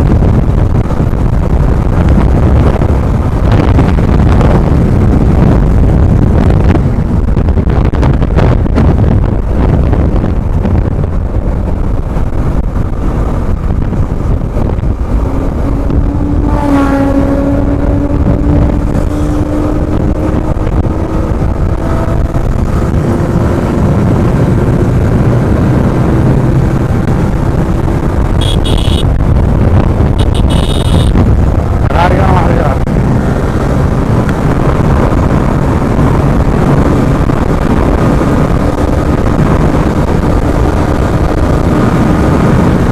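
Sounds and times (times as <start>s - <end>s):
wind buffeting microphone: 0.0s - 42.9s
short high-pitched tones: 28.4s - 29.1s, 30.2s - 31.2s.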